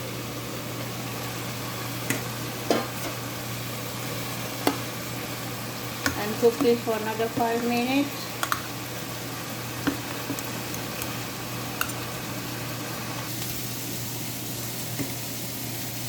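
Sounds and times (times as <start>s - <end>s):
curry simmering with hiss: 0.0s - 16.0s.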